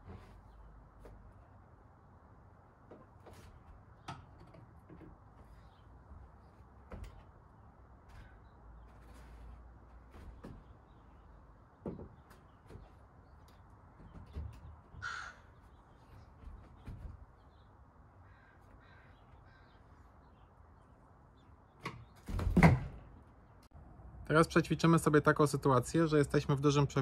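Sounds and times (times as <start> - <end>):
bird cawing: 8.1 - 8.8, 14.9 - 16.2, 17.5 - 20.4.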